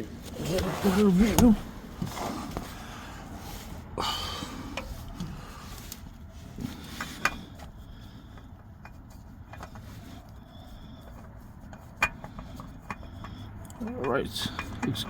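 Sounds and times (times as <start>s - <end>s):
low steady hum: 0.0s - 15.0s
hands fitting oil filter clicks: 11.0s - 15.0s.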